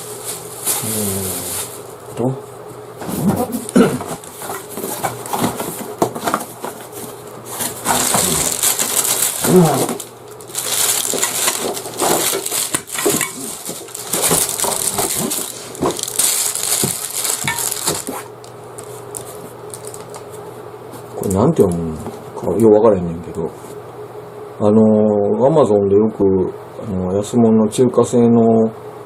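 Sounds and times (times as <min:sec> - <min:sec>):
packaging crinkling: 0:00.0 - 0:02.1, 0:03.3 - 0:20.5.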